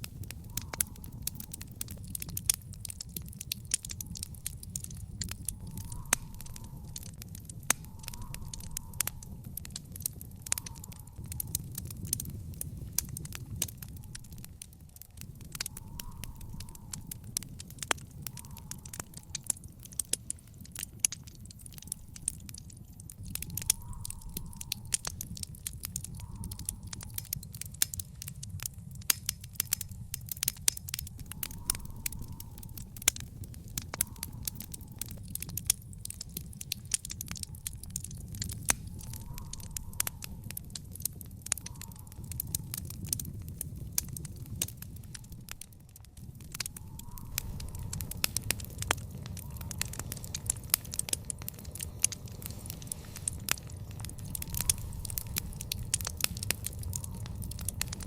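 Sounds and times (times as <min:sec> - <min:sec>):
low rumble of flames: 0:00.0 - 0:58.0
wood fire crackling and popping: 0:00.0 - 0:58.0.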